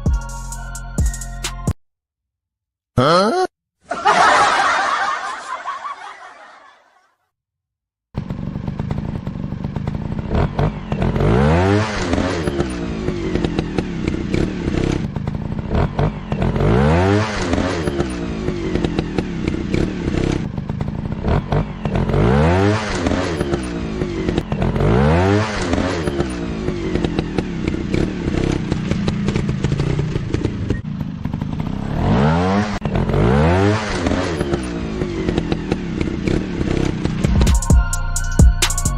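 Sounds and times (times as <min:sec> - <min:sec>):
motorcycle engine revving: 0:08.1 - 0:37.8.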